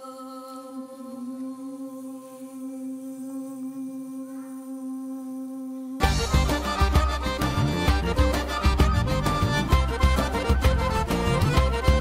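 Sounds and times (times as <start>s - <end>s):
person humming a steady note: 0.0s - 8.5s.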